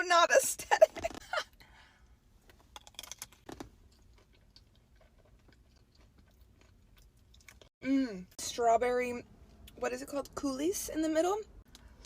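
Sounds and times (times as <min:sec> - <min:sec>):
person chewing crisp pastry: 0:02.6 - 0:07.8.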